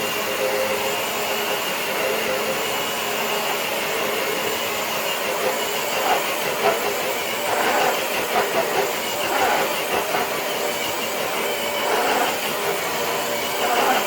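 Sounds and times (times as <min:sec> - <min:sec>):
toy truck motor running: 0:04.0 - 0:14.0
sled scraping on concrete: 0:05.4 - 0:14.0.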